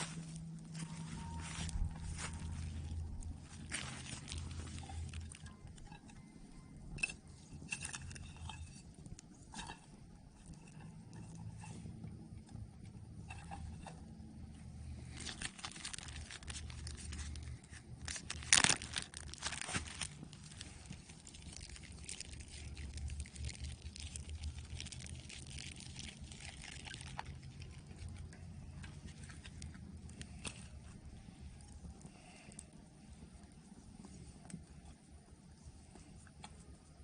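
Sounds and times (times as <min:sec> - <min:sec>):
campfire crackling: 0:07.8 - 0:34.7.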